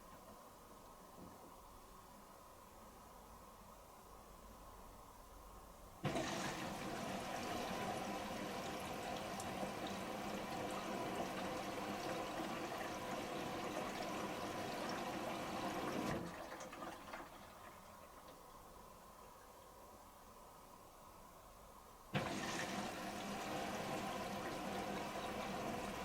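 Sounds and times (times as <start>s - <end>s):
water rushing into washing machine: 6.0s - 18.3s, 22.1s - 26.0s.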